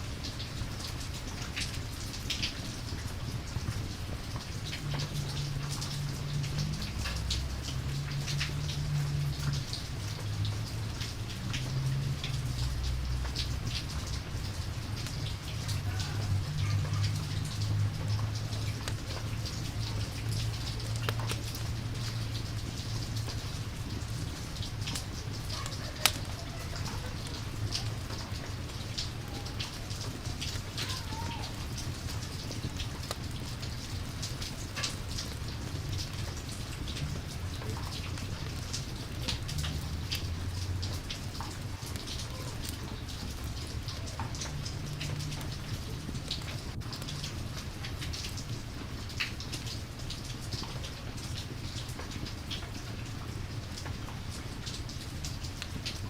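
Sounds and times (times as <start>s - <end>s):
drip-like ticks: 0.0s - 56.0s
steady rain: 0.0s - 56.0s.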